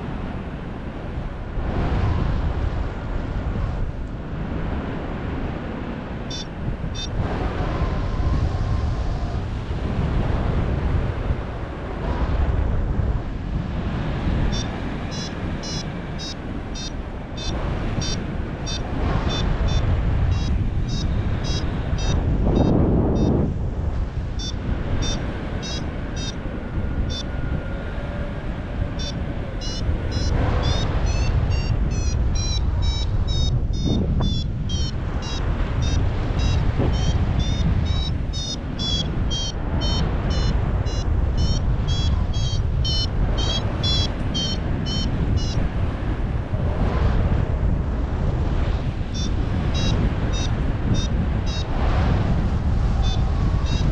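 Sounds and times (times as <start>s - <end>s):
wind on microphone: 0.0s - 53.9s
variometer beeping: 6.3s - 7.2s, 14.5s - 23.5s, 24.3s - 26.4s, 27.0s - 27.3s, 29.0s - 45.7s, 49.1s - 51.7s, 53.0s - 53.9s.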